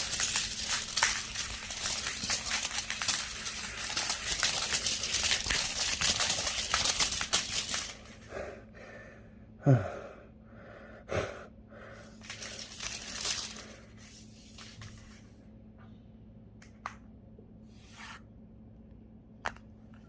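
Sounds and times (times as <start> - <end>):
rustling and crinkling: 0.0 - 8.2, 12.2 - 15.4.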